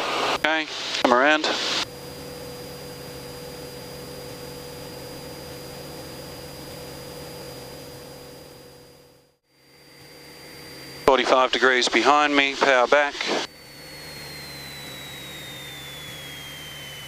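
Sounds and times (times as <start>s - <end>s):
intercom hiss and hum: 0.0s - 1.9s, 9.6s - 17.0s
muffled aircraft engine drone: 0.0s - 17.0s.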